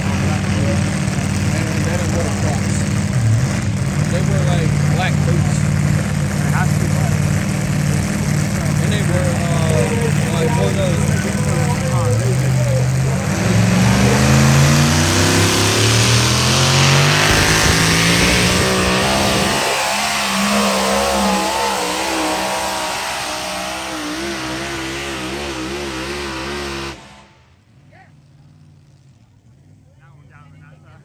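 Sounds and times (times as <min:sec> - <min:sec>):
truck engine at full throttle: 0:00.0 - 0:29.8.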